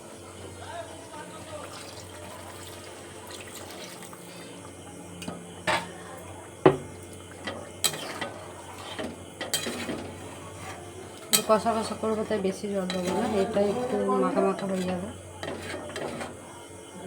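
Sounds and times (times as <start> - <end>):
metal utensils clinking on pot: 6.7 - 16.4.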